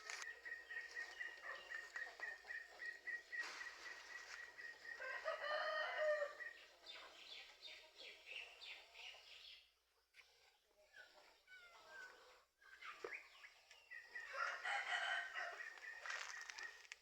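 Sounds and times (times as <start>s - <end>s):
rooster crowing: 5.0s - 6.4s, 14.3s - 15.6s.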